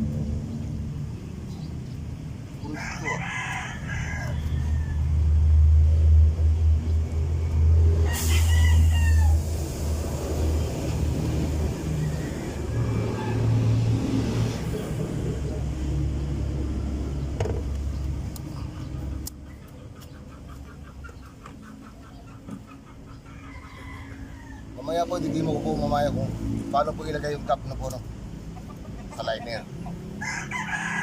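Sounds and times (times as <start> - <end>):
low vehicle rumble: 0.0 - 31.0
rooster crowing: 2.7 - 5.3, 8.0 - 9.6, 11.6 - 14.0, 23.3 - 25.0, 30.2 - 31.0.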